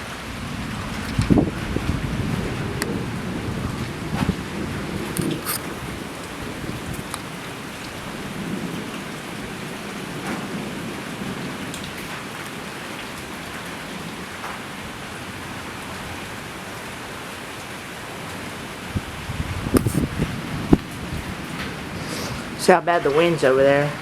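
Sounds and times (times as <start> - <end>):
low thunder rumble: 0.0 - 12.6, 18.8 - 22.7
steady rain falling: 0.0 - 24.0.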